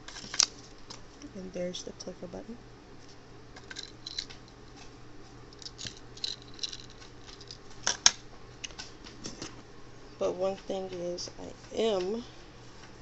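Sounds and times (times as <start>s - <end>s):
packaging rustling: 5.6s - 8.2s.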